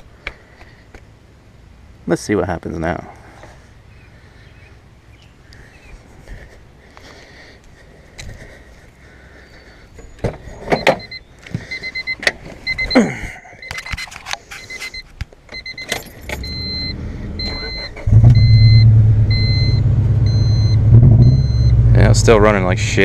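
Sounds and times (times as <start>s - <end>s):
electronic warning chime: 10.8s - 14.0s, 14.6s - 21.8s
low hum: 16.2s - 23.0s
car engine running rough: 16.4s - 23.0s.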